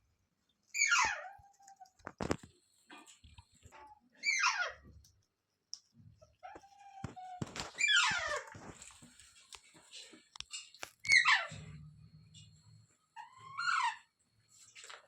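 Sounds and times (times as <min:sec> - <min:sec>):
parrot squawking: 0:00.8 - 0:01.4, 0:04.2 - 0:04.8, 0:07.7 - 0:08.5, 0:11.1 - 0:11.6.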